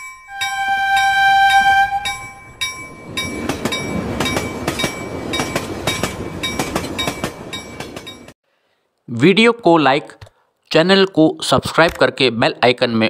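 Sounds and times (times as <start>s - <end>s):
train wheels clicking: 0.0s - 8.4s
train horn blast: 0.3s - 2.4s
train rumbling past: 0.3s - 8.4s.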